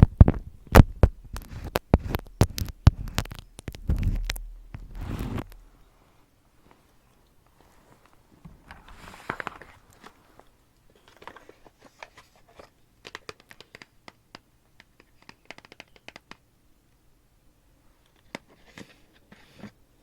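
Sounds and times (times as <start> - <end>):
small clicks and taps: 0.0 - 4.8, 10.8 - 16.5
crinkling and crunching: 0.0 - 5.8, 6.6 - 13.9.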